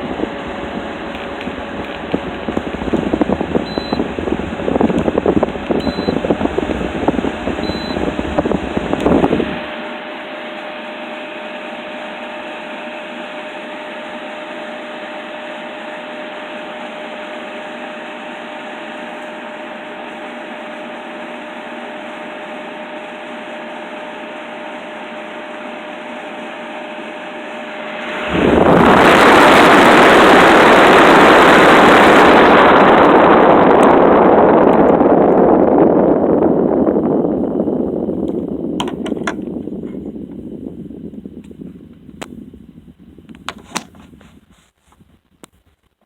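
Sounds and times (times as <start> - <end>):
faint whine: 0.0 - 9.8
loud rush of air: 0.0 - 9.8, 27.7 - 38.8
air conditioner fan whoosh: 0.0 - 45.2.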